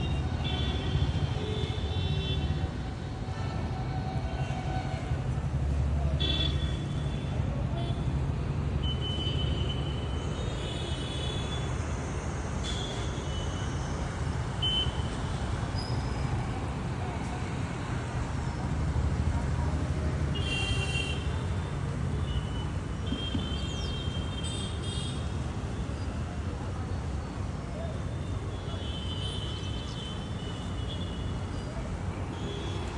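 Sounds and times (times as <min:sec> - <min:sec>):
traffic engine rumble: 0:00.0 - 0:32.9
vehicle horns: 0:20.4 - 0:21.3.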